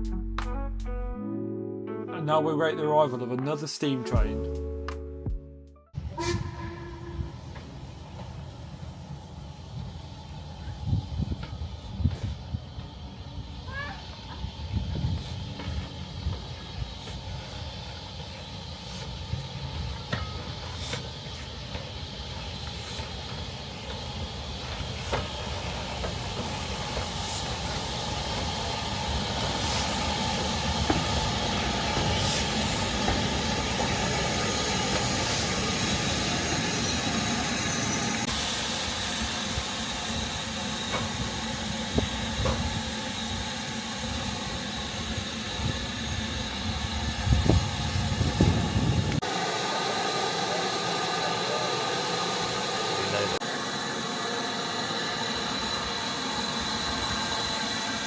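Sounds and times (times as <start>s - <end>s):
train knocks: 6.0s - 9.1s, 14.1s - 17.4s, 19.7s - 38.4s, 39.5s - 49.2s
steam train hiss and rumble: 6.0s - 58.0s.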